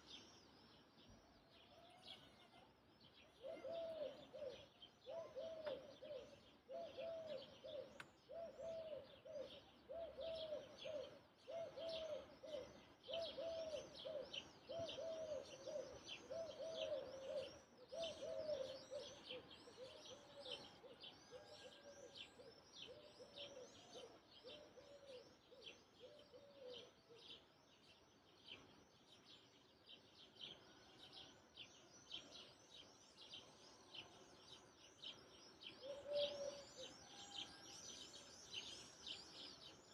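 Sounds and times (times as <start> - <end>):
bird cooing: 1.7 - 27.4, 35.0 - 39.5.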